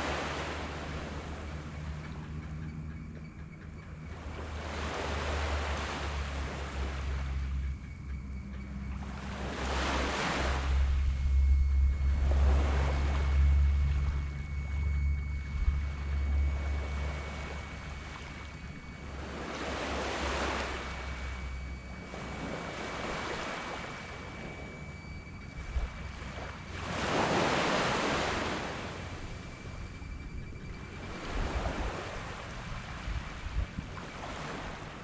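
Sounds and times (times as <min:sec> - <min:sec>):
low rumble: 0:06.4 - 0:27.0.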